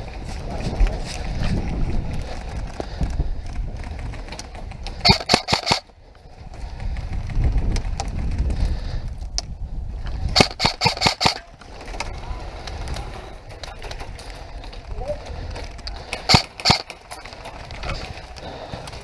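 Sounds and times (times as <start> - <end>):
low rumbling of movement and wind: 0.0 - 19.0
airsoft gun shots: 5.0 - 5.8, 10.4 - 11.5, 16.3 - 16.9.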